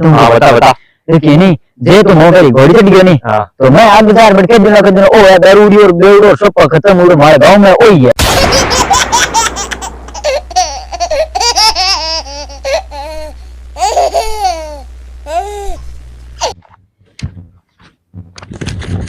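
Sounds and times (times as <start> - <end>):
steady low hum: 8.2 - 16.7
high-pitched laughter: 8.3 - 15.8.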